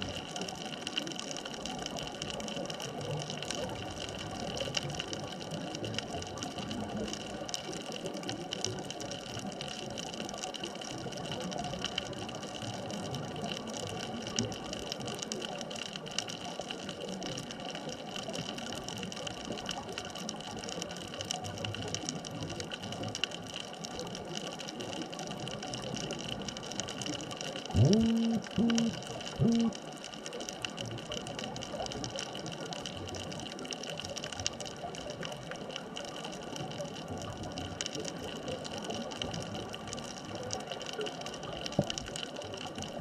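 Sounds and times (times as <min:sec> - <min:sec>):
faint steady tones: 0:27.8 - 0:30.4.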